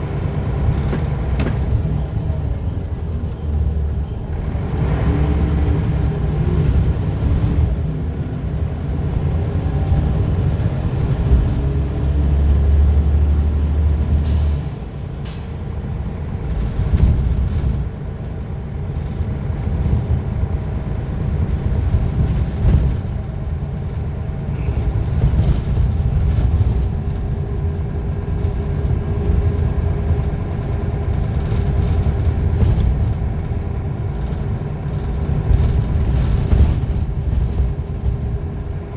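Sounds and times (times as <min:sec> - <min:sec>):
bus diesel engine droning: 0:00.0 - 0:38.9
air brake hiss: 0:14.2 - 0:15.6.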